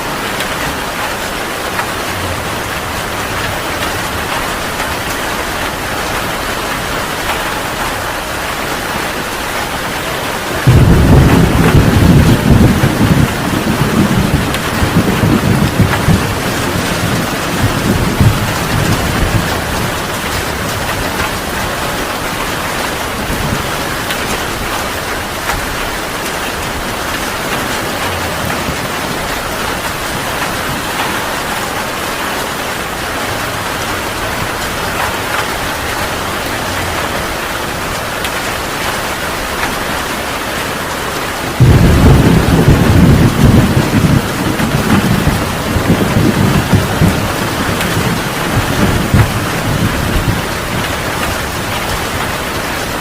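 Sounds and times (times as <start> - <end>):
heavy rain falling: 0.0 - 53.0
low rumble of thunder: 8.6 - 37.9, 41.5 - 53.0.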